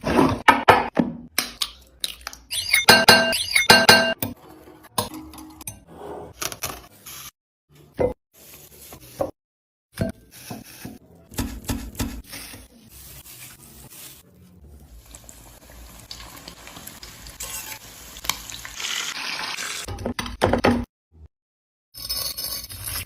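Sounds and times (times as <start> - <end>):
chicken sizzling in hot oil: 14.8 - 19.9.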